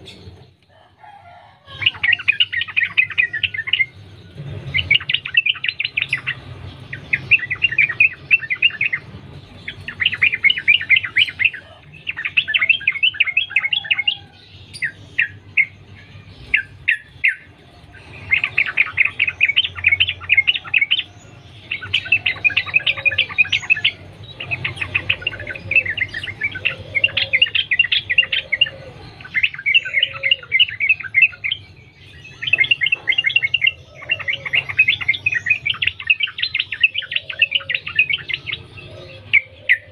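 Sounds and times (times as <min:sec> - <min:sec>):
bird chirping in rapid bursts: 0:01.7 - 0:39.9.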